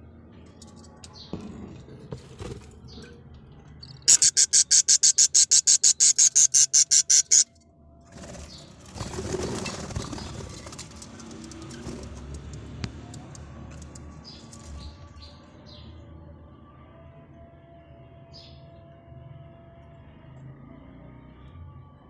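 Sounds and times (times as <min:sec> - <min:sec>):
bird sharp rapid pulses: 0:04.0 - 0:07.5.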